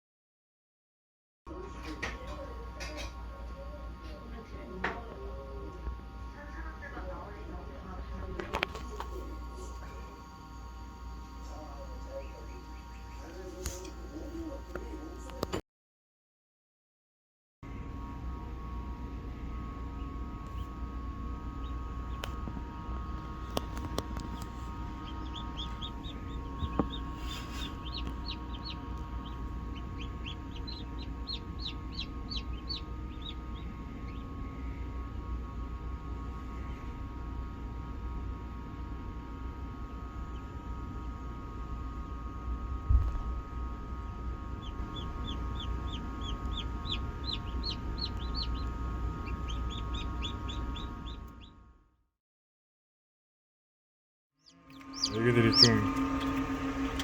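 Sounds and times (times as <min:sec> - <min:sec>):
steady hum: 0:01.5 - 0:15.6, 0:17.7 - 0:51.9, 0:54.5 - 0:57.0
chicks peeping: 0:11.6 - 0:14.0, 0:21.4 - 0:22.6, 0:23.3 - 0:34.9, 0:44.0 - 0:51.5, 0:54.6 - 0:57.0.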